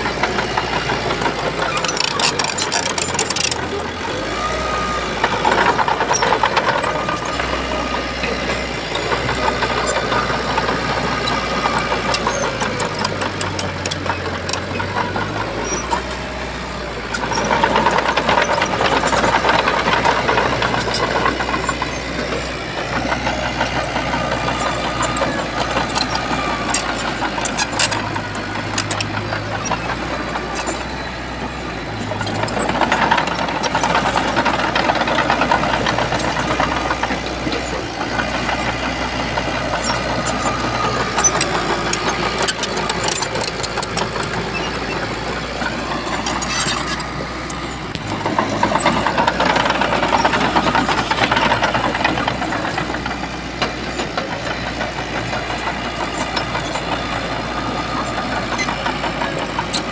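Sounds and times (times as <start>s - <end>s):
bulldozer diesel engine working: 0.0s - 59.9s
metal clanks: 0.2s - 4.0s, 23.0s - 31.4s.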